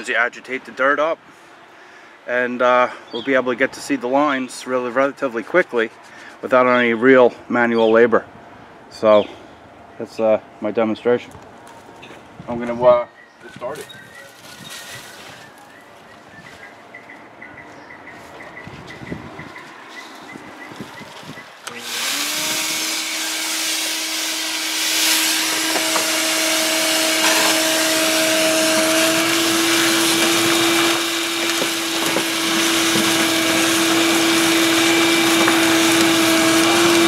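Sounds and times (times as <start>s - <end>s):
shop vac motor whine: 21.4s - 37.0s
debris rattling through hose: 21.7s - 37.0s.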